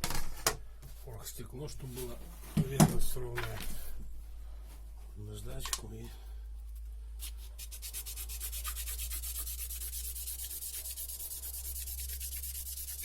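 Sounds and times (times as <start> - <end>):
metal ring rubbed on sandpaper: 7.2 - 13.0.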